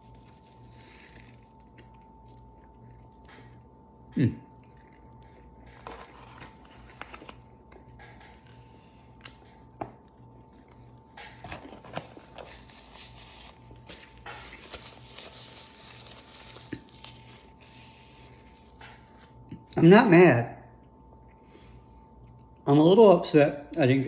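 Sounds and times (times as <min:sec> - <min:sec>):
chewing with mouth clicks: 0:00.0 - 0:06.6, 0:20.8 - 0:22.6
faint steady hum: 0:00.0 - 0:24.0.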